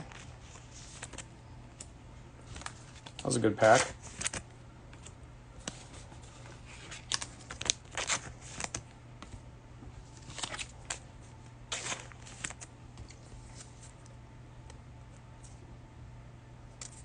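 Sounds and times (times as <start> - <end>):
cards sliding and swishing: 11.7 - 14.0.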